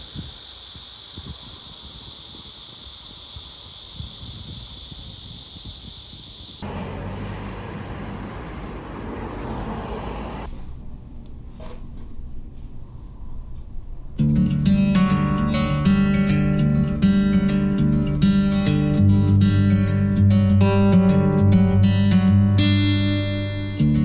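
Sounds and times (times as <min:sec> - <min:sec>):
high-pitched hiss: 0:00.0 - 0:06.6.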